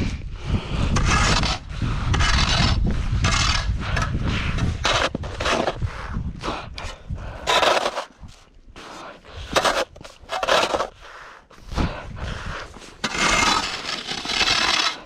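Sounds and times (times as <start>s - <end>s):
shovel scraping snow: 4.8s - 5.8s, 7.5s - 8.2s, 9.4s - 11.0s, 12.9s - 15.0s.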